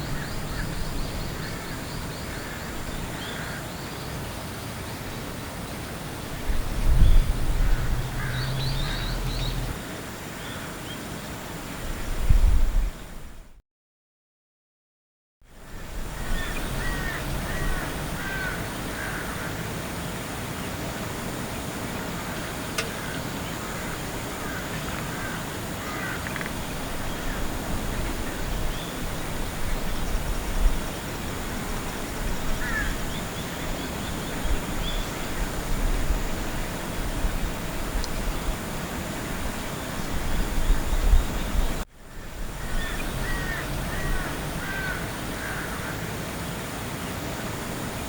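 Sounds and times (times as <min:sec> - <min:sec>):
outdoor background noise: 0:00.0 - 0:13.6, 0:15.4 - 0:48.0
bird harsh calls: 0:07.1 - 0:09.8, 0:32.6 - 0:33.6, 0:42.1 - 0:46.1.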